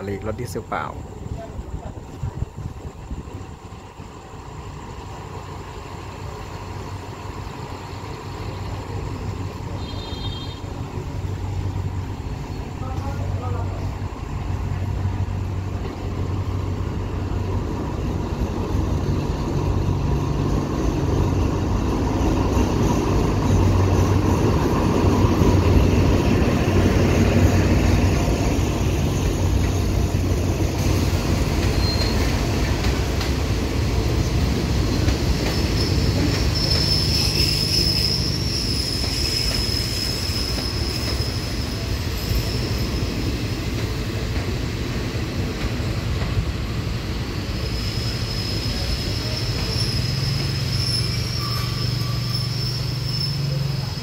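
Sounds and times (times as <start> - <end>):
diesel locomotive engine: 0.0 - 54.0
train wheel noise: 0.8 - 54.0
high-pitched brake squeal: 31.6 - 32.4, 35.5 - 43.2, 47.6 - 54.0.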